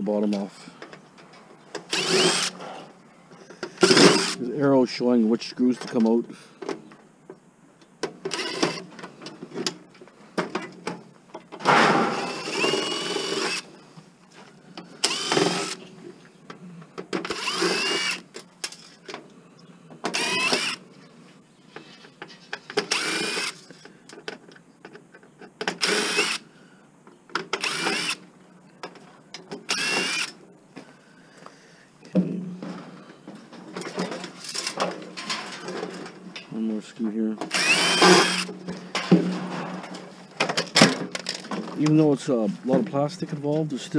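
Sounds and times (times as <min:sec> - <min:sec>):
power drill whirring: 0:01.9 - 0:02.6, 0:03.8 - 0:04.4, 0:08.3 - 0:08.8, 0:12.1 - 0:13.7, 0:15.0 - 0:15.8, 0:17.2 - 0:19.0, 0:20.1 - 0:20.8, 0:22.8 - 0:23.6, 0:25.8 - 0:26.4, 0:27.6 - 0:28.2, 0:29.7 - 0:30.4, 0:37.5 - 0:38.5.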